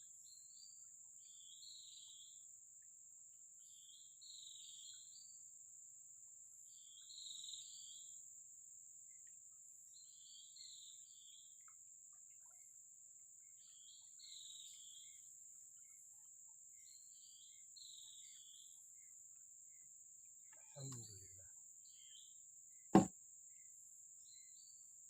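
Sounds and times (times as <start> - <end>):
insects droning: 0.0 - 25.0
faint chirping call: 3.6 - 5.5, 13.4 - 23.7.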